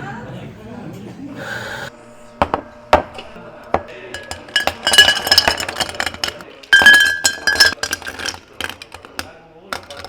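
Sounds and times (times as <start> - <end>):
glassware clinking: 2.4 - 10.0.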